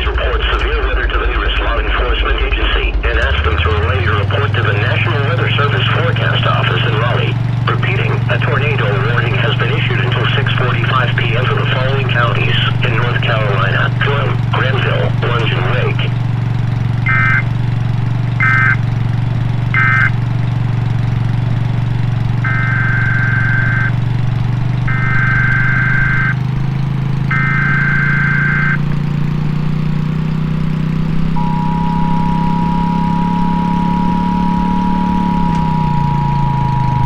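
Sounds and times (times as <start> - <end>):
low engine hum: 0.0 - 37.0
buzzy data bursts: 17.1 - 17.5, 19.7 - 20.1
two-tone attention signal: 17.1 - 17.5, 18.4 - 18.8, 19.8 - 20.1, 22.5 - 24.0, 24.9 - 26.4, 27.3 - 28.8, 31.4 - 37.0.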